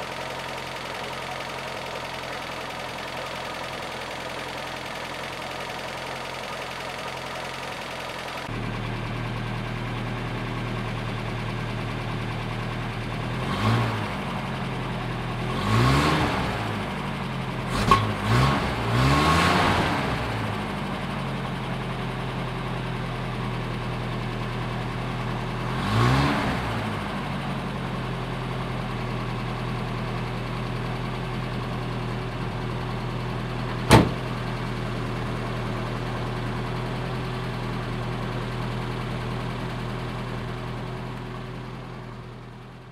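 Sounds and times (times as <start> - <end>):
car engine idling and revving: 0.0 - 42.9.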